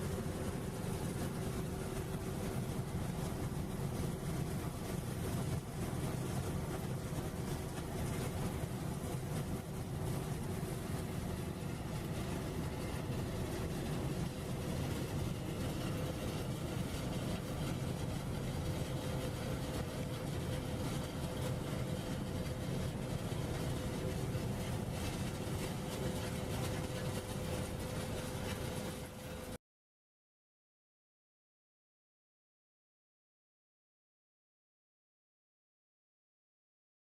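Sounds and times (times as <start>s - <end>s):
machinery hum and rumble: 0.0s - 29.6s.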